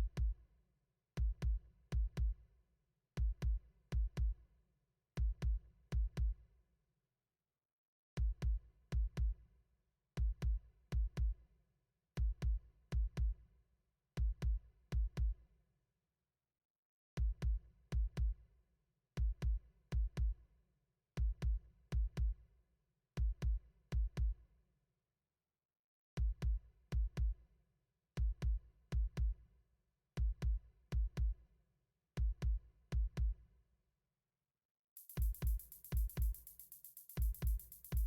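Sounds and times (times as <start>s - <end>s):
electronic drum machine beat: 35.0s - 38.0s.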